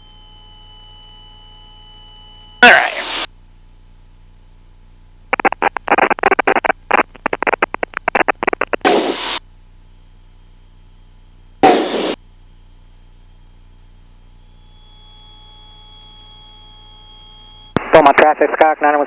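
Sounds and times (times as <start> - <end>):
garbled radio transmission: 2.6 - 3.3, 5.3 - 9.4, 11.6 - 12.2, 17.8 - 19.0
radio static bursts: 2.6 - 3.3, 5.3 - 9.4, 11.6 - 12.2, 17.8 - 19.0.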